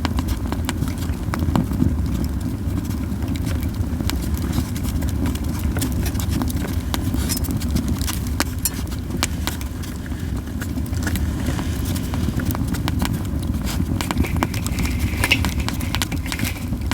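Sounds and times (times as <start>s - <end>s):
campfire crackling: 0.0s - 16.9s
steady low rumble: 0.0s - 16.9s.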